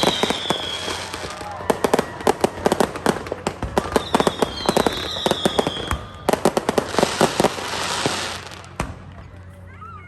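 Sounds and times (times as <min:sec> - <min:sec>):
high firework whistle: 0:00.0 - 0:02.2, 0:03.8 - 0:08.4
fireworks bangs and crackling: 0:00.0 - 0:09.5.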